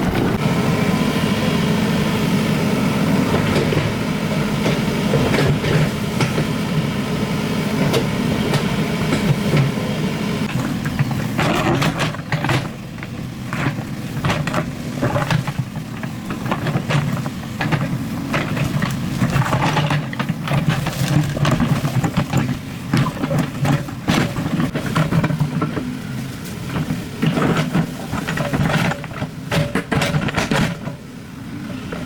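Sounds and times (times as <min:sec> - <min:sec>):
excavator diesel engine running: 0:00.0 - 0:32.0
knocks clanks and scrapes: 0:10.4 - 0:31.0.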